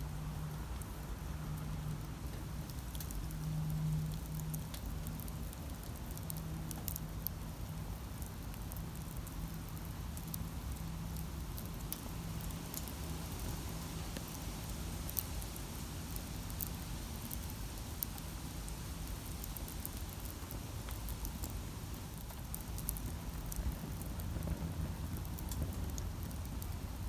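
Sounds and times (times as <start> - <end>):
campfire crackling: 0.2 - 27.0.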